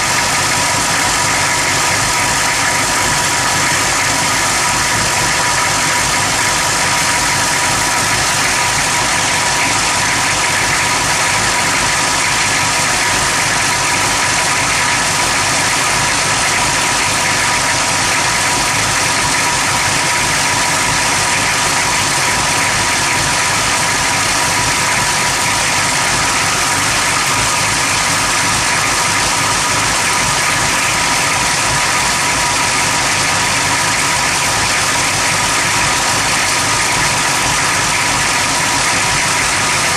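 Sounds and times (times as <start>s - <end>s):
engine idling roughly: 0.0s - 39.9s.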